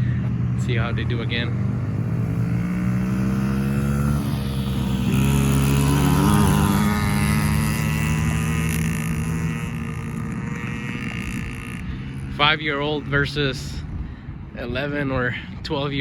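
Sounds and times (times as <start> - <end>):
small dirt bike engines: 0.0 - 16.0.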